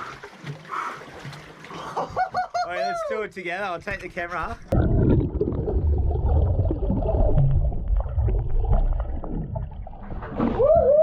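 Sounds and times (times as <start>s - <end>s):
underwater rumble and gurgling: 4.6s - 11.0s
bubbles: 4.7s - 10.4s.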